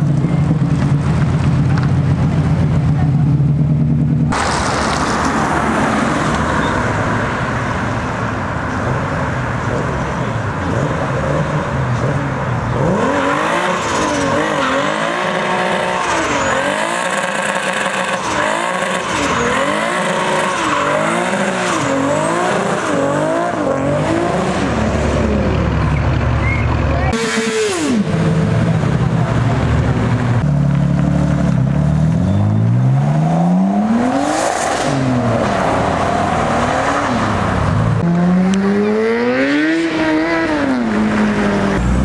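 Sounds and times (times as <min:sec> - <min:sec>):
car engines pulling away: 0:00.0 - 0:42.0
car engine revving: 0:10.0 - 0:42.0
tyres squealing: 0:13.9 - 0:23.0.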